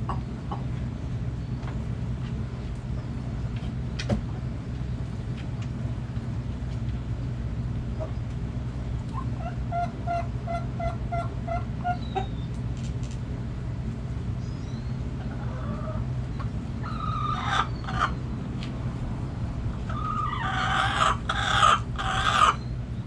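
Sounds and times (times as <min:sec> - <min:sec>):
hen clucking: 0:00.0 - 0:00.9, 0:09.0 - 0:12.4, 0:15.1 - 0:18.2, 0:19.8 - 0:22.8
low background rumble: 0:00.0 - 0:23.0.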